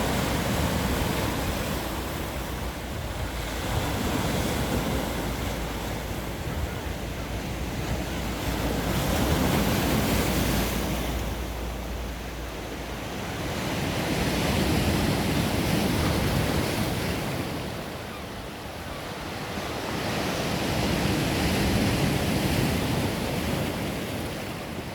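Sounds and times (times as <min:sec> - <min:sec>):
wind buffeting microphone: 0:00.0 - 0:17.8
sea waves breaking on shore: 0:00.0 - 0:24.9.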